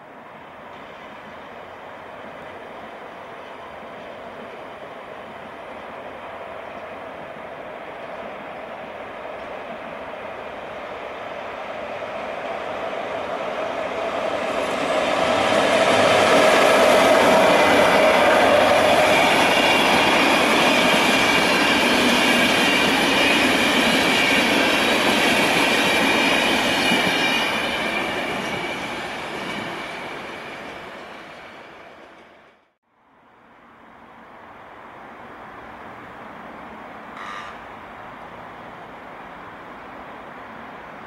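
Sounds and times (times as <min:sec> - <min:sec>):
train rolling past: 0:00.0 - 0:32.8
wheels squealing on rail: 0:14.4 - 0:32.4, 0:37.1 - 0:37.8.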